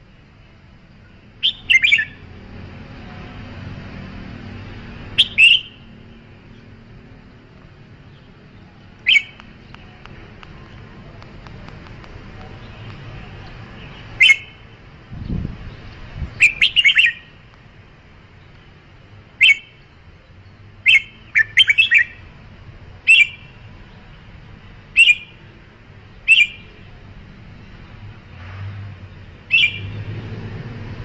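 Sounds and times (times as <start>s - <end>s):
bird whistling song: 1.4s - 2.3s, 5.2s - 5.9s, 9.0s - 9.5s, 13.8s - 14.6s, 16.3s - 17.4s, 19.4s - 19.9s, 20.8s - 22.2s, 23.0s - 23.6s, 25.0s - 25.4s, 26.3s - 26.8s, 29.5s - 30.0s.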